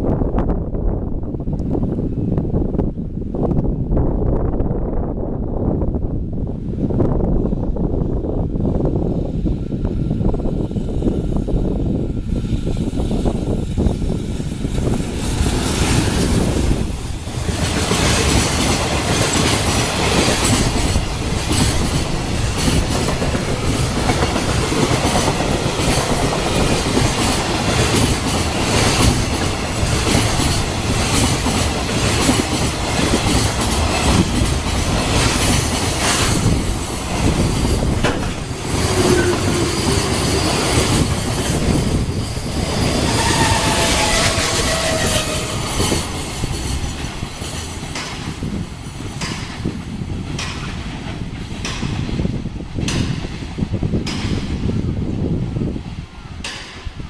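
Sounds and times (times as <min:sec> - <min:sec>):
freight train passing: 0:00.0 - 0:57.0
wheels clattering over rail joints: 0:14.8 - 0:54.6.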